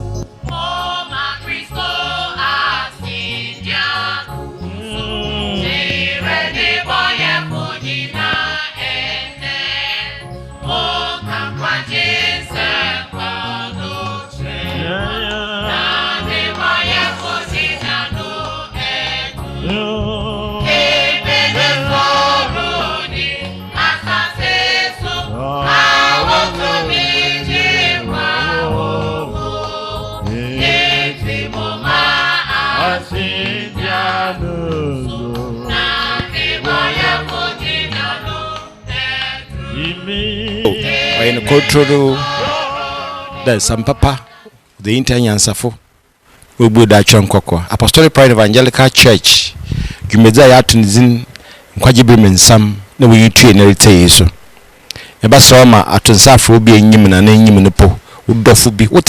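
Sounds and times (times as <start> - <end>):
instrumental backing with beat: 0.0 - 9.6, 10.4 - 43.1
choir singing gospel: 0.0 - 44.6.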